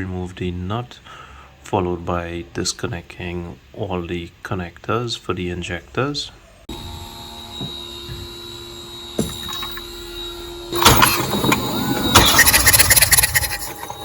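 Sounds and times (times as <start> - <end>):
starter motor cranking engine: 10.8 - 14.0.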